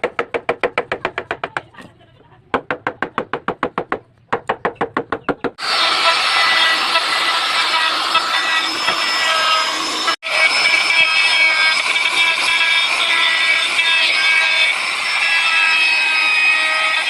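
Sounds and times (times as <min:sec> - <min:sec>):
workshop machine whining: 0:05.5 - 0:17.0.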